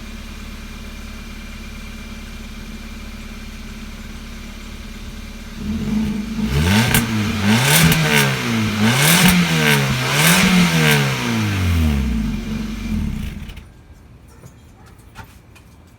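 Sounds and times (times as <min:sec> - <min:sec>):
car engine revving: 0:05.4 - 0:13.7.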